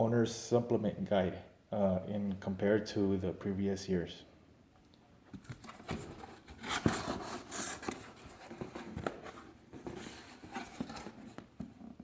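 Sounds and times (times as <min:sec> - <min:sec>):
cardboard box scraping and rustling: 0:05.6 - 0:11.4.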